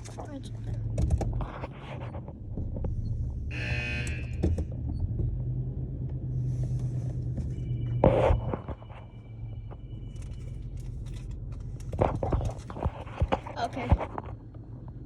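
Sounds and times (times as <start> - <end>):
car wash rumble and hum: 0.0 - 15.0
brief buzzing tone: 3.5 - 4.4.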